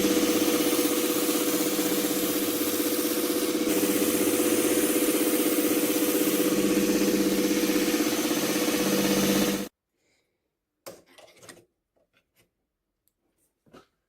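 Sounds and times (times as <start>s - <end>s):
belt sander grinding wood: 0.0s - 9.7s.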